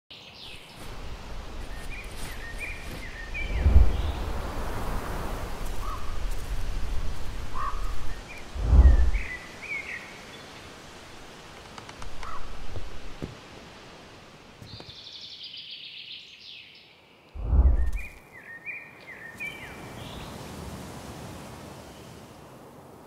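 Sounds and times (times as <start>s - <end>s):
small birds chirping: 0.1s - 13.2s, 14.6s - 20.5s
outdoor hiss: 0.3s - 16.5s
low rushing swells: 3.3s - 4.9s, 8.5s - 9.4s, 17.4s - 18.0s.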